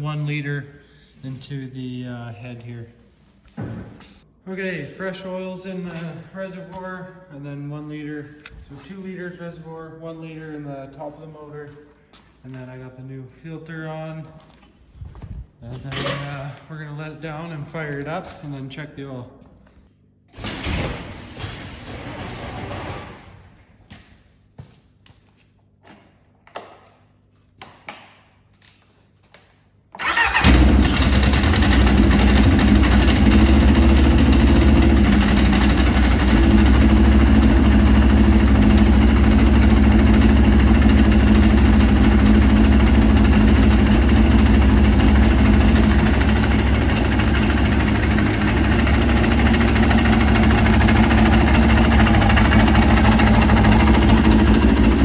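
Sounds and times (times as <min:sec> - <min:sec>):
engine starting and idling: 0:20.4 - 0:23.3, 0:30.0 - 0:55.0.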